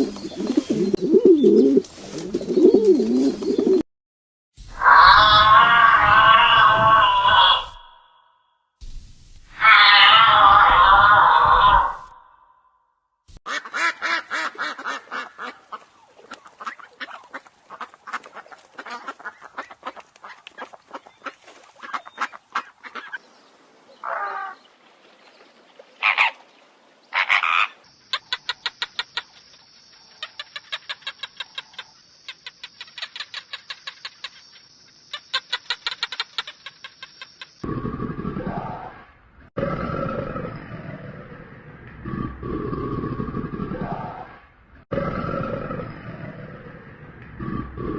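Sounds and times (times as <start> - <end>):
ducks quacking: 13.5 - 23.2.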